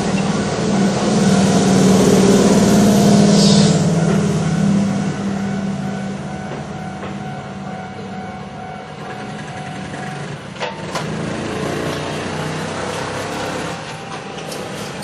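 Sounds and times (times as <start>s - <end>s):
electric train rumbling past: 0.0s - 15.0s
brief hiss: 3.4s - 3.8s.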